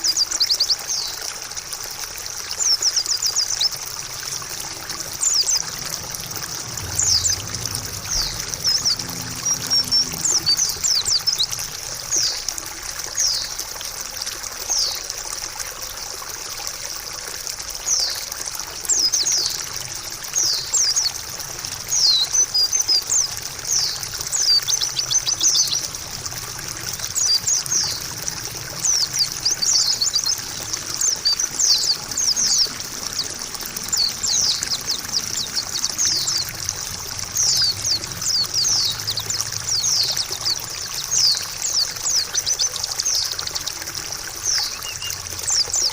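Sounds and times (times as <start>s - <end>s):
trickle of running water: 0.0s - 45.9s
bird chirping: 2.6s - 12.5s, 21.9s - 26.0s, 28.8s - 36.5s, 44.4s - 45.9s.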